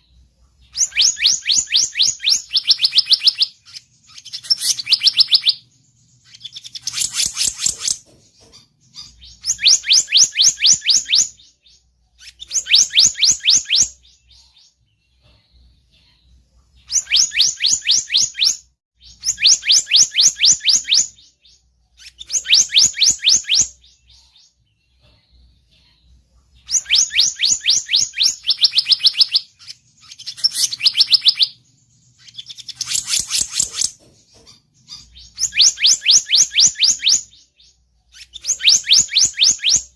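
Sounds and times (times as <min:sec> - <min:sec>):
bird chirping rapidly: 0:00.0 - 0:15.2, 0:16.8 - 0:25.0, 0:26.6 - 0:39.9.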